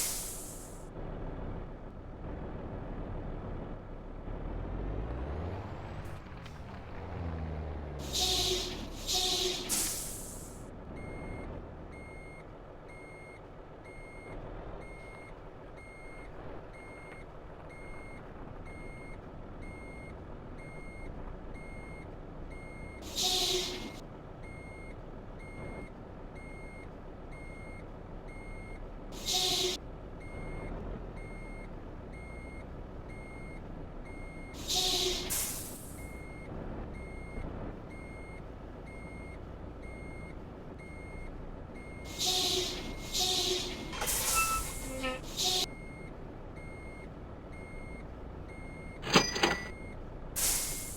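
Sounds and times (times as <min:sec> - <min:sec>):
air brake hisses: 0:00.0 - 0:00.8, 0:08.0 - 0:10.6, 0:23.0 - 0:24.0, 0:29.2 - 0:29.8, 0:34.6 - 0:36.2, 0:42.1 - 0:45.7, 0:50.4 - 0:50.9
truck reversing alarm beeping: 0:00.0 - 0:00.8, 0:04.8 - 0:50.9
low idling engine: 0:00.0 - 0:50.9.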